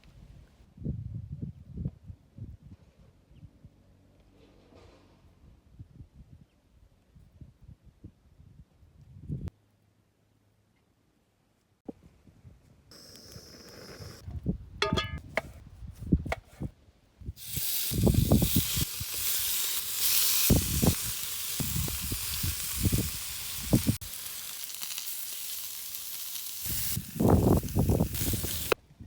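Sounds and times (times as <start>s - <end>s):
metallic ring: 14.8s - 15.2s
fish sizzling in a pan: 17.4s - 28.8s.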